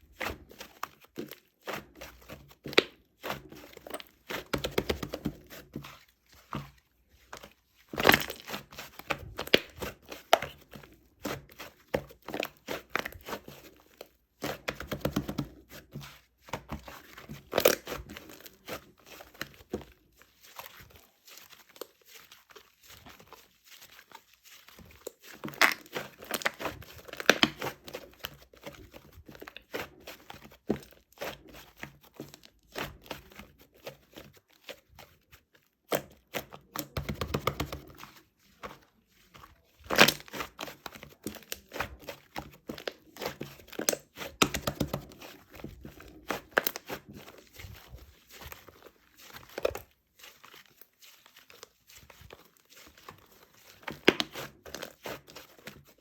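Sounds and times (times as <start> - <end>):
crinkling and rustling: 0.0 - 56.0.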